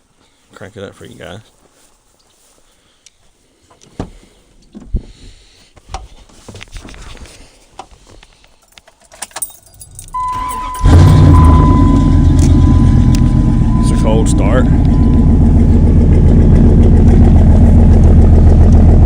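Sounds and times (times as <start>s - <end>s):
keys jangling: 8.5s - 11.2s
truck engine cranking: 8.9s - 19.0s
deep engine exhaust rumble: 10.1s - 19.0s
steady electronic tone: 10.2s - 18.7s.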